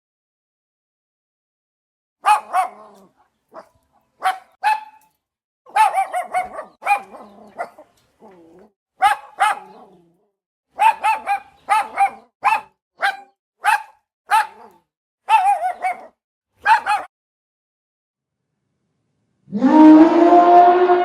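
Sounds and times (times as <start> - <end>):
dog yapping: 2.2 - 5.1, 5.7 - 10.1, 10.8 - 17.1.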